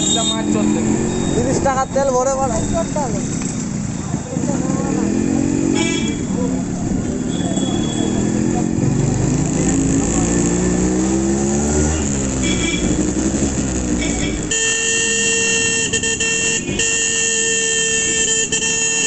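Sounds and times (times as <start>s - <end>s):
two-stroke motorcycle engine revving: 0.0s - 19.0s
long vehicle horn blast: 5.7s - 6.3s, 14.0s - 19.0s.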